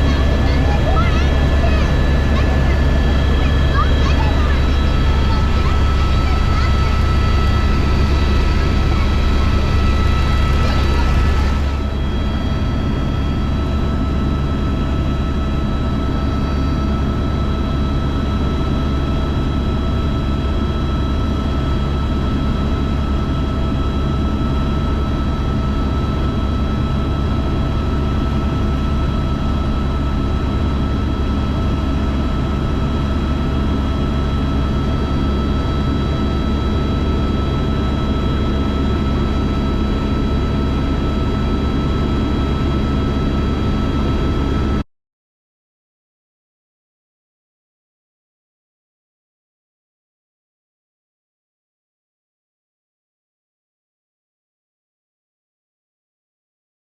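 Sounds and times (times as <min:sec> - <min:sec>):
helicopter droning and whining: 0:00.0 - 0:44.8.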